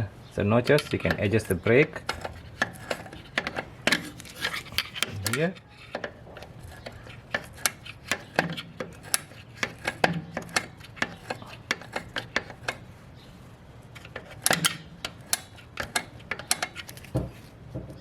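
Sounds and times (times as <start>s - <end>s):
metallic clicks of brake adjuster: 14.0s - 17.1s.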